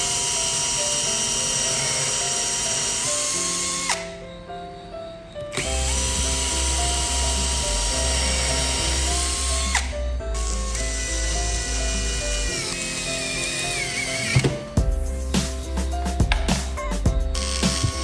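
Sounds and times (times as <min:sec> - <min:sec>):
power drill motor whining: 0:00.0 - 0:04.2, 0:05.5 - 0:14.7, 0:17.4 - 0:18.0
background music with steady beat: 0:05.6 - 0:18.0.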